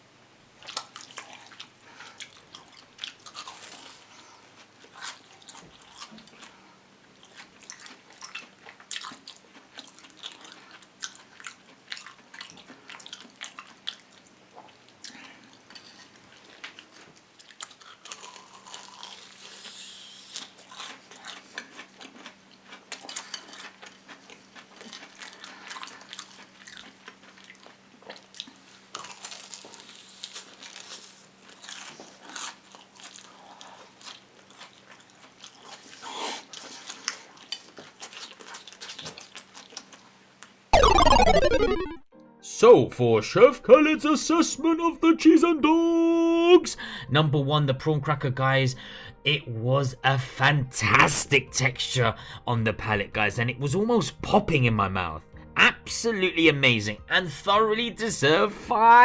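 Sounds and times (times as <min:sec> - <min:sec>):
crunching and chewing food: 0:00.6 - 0:40.7.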